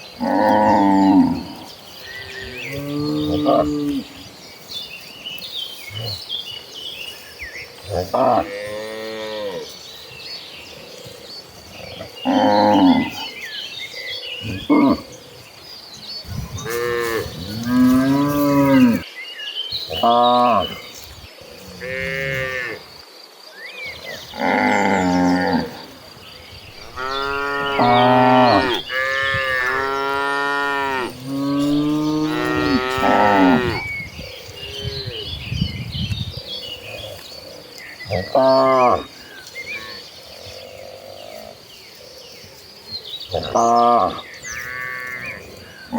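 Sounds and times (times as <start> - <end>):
cattle mooing: 26.8 - 33.8.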